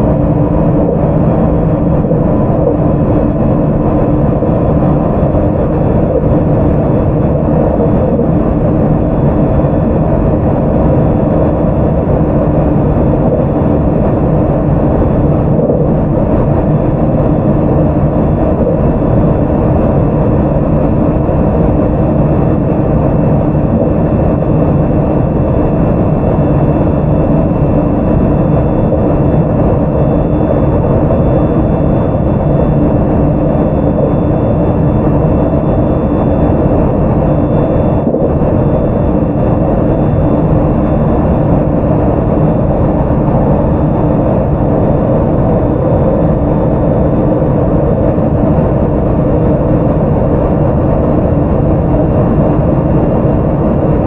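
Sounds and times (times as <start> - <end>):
thin steady whining tones: 0.0 - 54.0
wheels rumbling on rails: 0.0 - 54.0.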